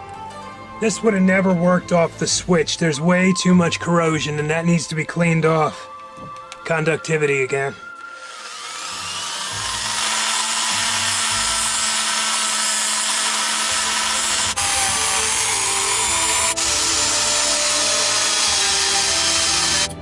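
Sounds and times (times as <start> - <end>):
rotary tool whining: 7.3 - 20.0.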